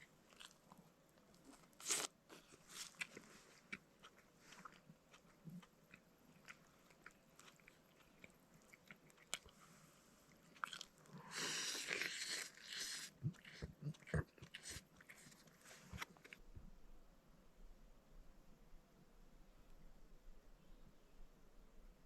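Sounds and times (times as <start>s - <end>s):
person chewing: 0.0s - 9.6s, 10.3s - 16.4s.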